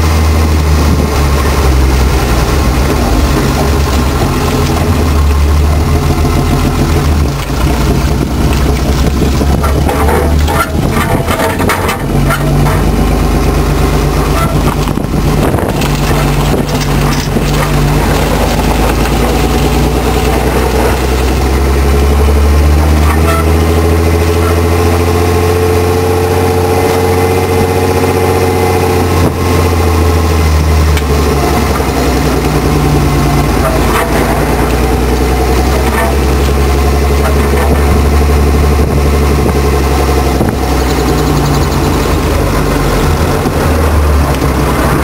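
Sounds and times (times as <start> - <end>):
car engine droning: 0.0 - 45.0.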